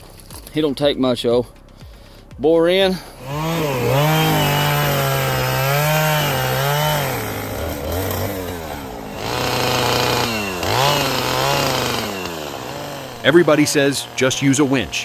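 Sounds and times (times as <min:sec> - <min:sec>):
chainsaw cutting tree trunk: 0:03.0 - 0:15.0.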